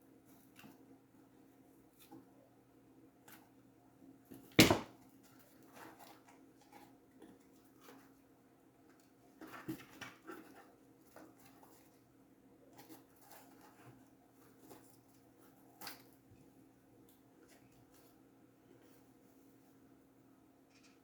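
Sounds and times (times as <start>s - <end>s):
cardboard knocking and rustling: 4.6s - 4.9s.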